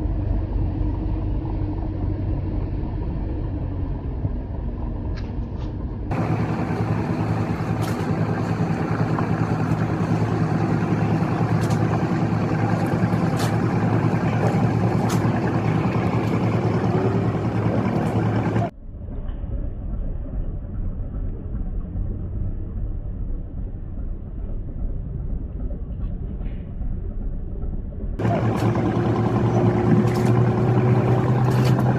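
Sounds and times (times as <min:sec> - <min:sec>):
rushing wind: 0:00.0 - 0:18.7
boat engine droning: 0:00.0 - 0:31.9
water noise: 0:06.1 - 0:18.7, 0:28.2 - 0:31.9.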